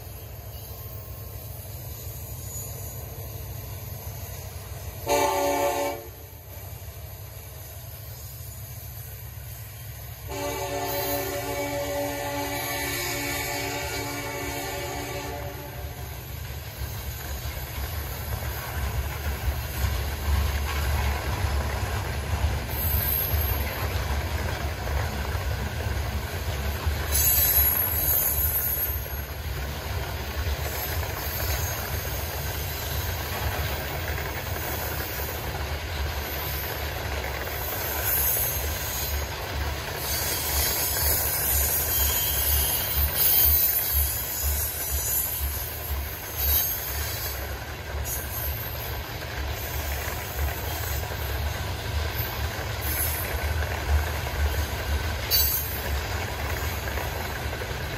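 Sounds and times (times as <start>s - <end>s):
freight train wheels rumbling: 0.0s - 57.9s
high-pitched wheel squeal: 40.0s - 45.5s.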